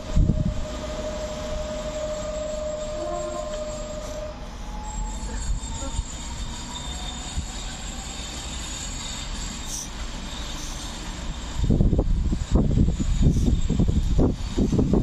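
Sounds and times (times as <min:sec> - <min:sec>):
wind buffeting microphone: 0:00.0 - 0:00.8, 0:11.4 - 0:15.0
train wheels rumbling on track: 0:00.0 - 0:15.0.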